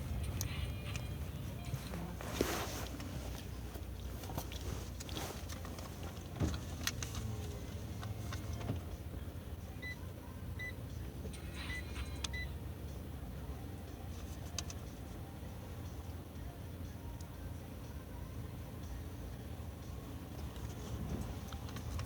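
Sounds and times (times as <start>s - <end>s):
car engine hum: 0.0s - 22.0s
clicks and rustles: 0.2s - 8.8s, 20.4s - 22.0s.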